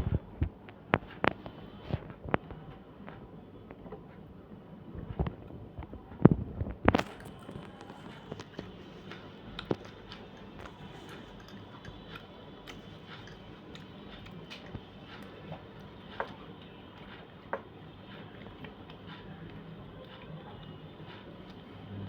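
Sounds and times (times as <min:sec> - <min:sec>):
person chewing food: 0:06.9 - 0:19.7.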